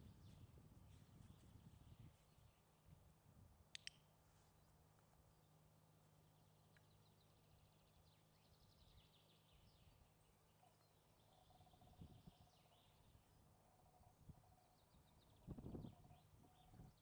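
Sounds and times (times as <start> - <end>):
distant small birds singing: 0.0 - 17.0.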